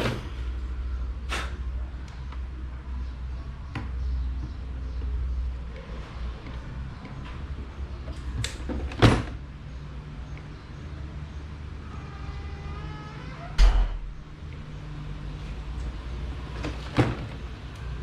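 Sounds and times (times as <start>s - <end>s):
steady low hum: 9.4s - 16.6s.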